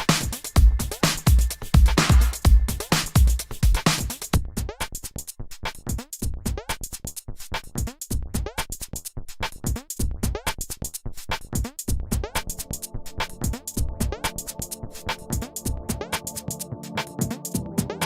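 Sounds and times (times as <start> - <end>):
heavy kick drum: 0.0 - 4.7
electronic music with drum-machine beat: 0.0 - 18.0.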